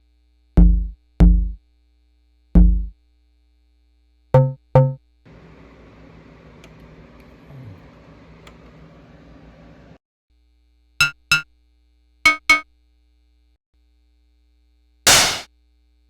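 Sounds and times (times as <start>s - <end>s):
electronic drum hits: 15.1s - 15.5s.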